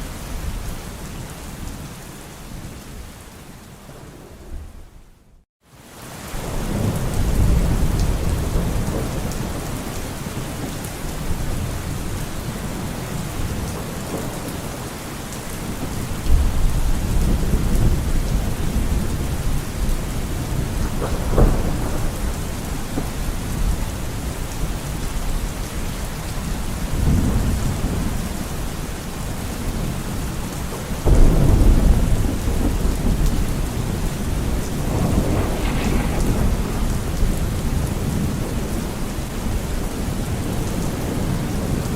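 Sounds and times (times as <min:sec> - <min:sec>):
steady rain: 0:00.0 - 0:41.9
thunder rumbles: 0:06.4 - 0:25.4, 0:30.7 - 0:41.9.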